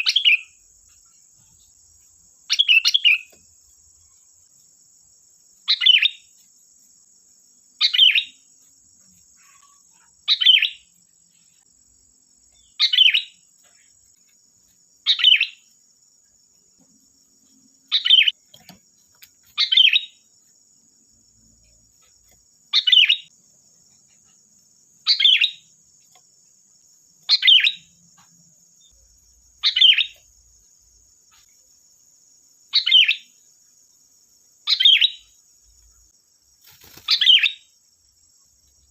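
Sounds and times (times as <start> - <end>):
bulbul calling: 0.0 - 0.6, 2.5 - 3.4, 12.6 - 13.4, 15.1 - 15.7, 17.9 - 18.8, 19.5 - 20.2, 22.8 - 23.3, 25.1 - 25.6, 29.6 - 30.3, 32.8 - 33.3, 34.7 - 35.3, 36.8 - 37.6.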